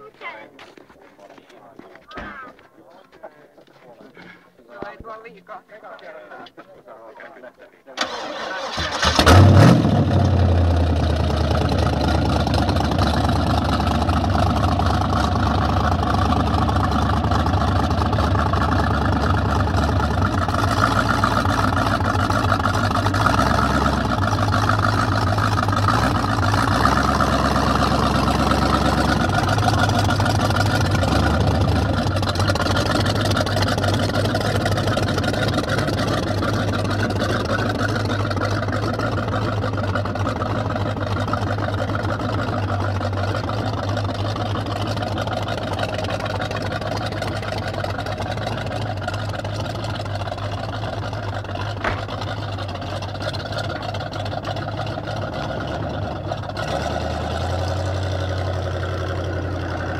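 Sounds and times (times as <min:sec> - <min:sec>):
car engine idling: 0:08.0 - 0:59.9.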